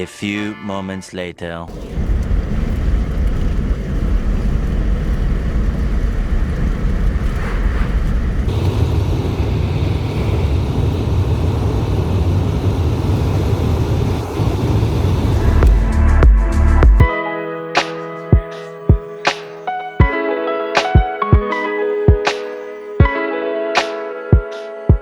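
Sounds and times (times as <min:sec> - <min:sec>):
car road noise rumble: 0:01.7 - 0:16.1.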